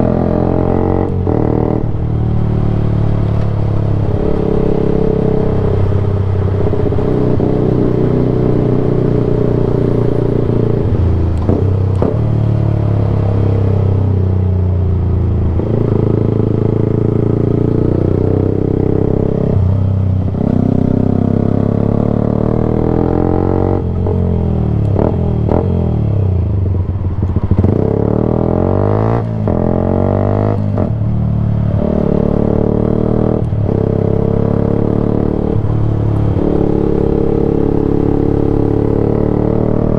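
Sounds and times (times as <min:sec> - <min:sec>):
motorbike engine revving: 0:00.0 - 0:06.0, 0:31.7 - 0:39.9.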